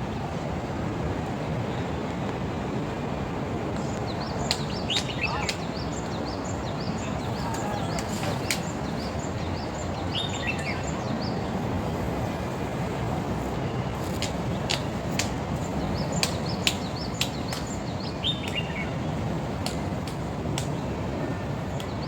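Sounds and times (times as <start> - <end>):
small birds calling: 4.0 - 20.0
sharp clicks: 14.0 - 17.8.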